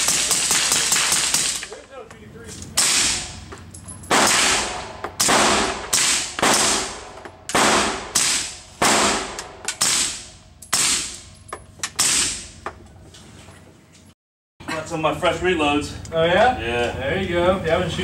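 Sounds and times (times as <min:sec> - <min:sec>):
suppressed gunshots with echo: 0:04.1 - 0:11.2.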